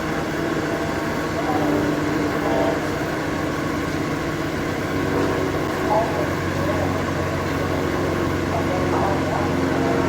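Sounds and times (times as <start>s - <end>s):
faint voices: 1.1s - 3.0s, 5.0s - 10.0s.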